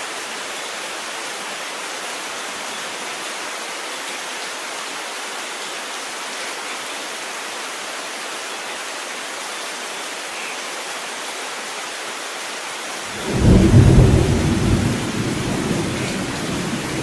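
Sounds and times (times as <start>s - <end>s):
rain hiss: 0.0s - 17.0s
thunder rumbling: 13.1s - 17.0s.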